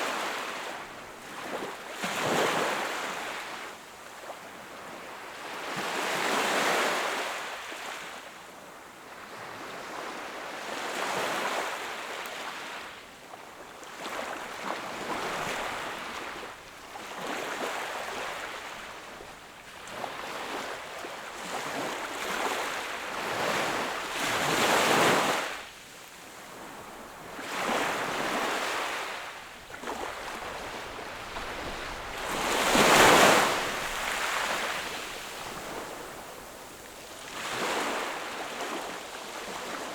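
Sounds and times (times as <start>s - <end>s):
sea waves breaking on shore: 26.4s - 39.9s.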